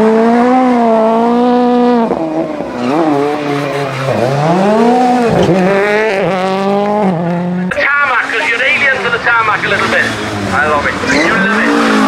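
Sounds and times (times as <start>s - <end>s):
rally car engine revving: 0.0s - 12.0s
tyres squealing: 9.8s - 12.0s.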